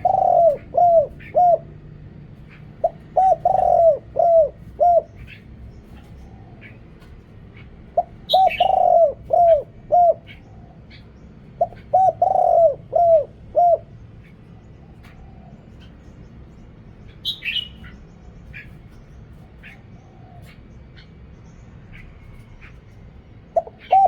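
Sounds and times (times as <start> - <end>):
dove cooing: 0.0 - 16.2, 17.2 - 21.2, 21.9 - 24.0
small birds chirping: 0.0 - 24.0.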